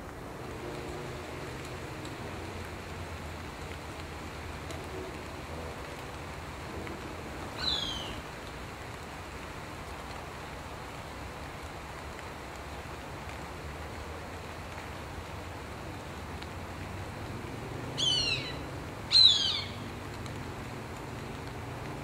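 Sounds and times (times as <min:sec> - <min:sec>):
bird call sliding downward: 0:19.1 - 0:19.7.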